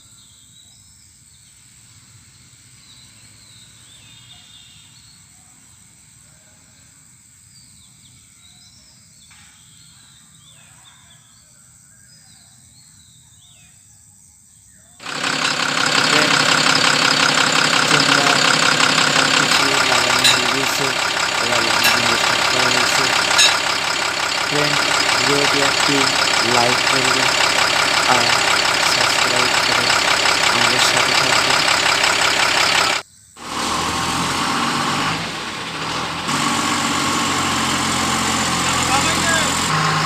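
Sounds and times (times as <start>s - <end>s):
birds chirping: 15.0s - 33.0s
diesel truck engine idling: 15.0s - 40.0s.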